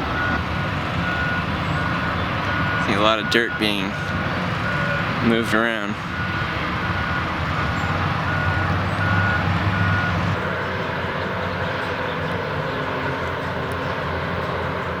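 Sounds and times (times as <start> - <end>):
reversing alarm beeping: 0.0 - 10.3
diesel earthmovers droning: 0.0 - 15.0.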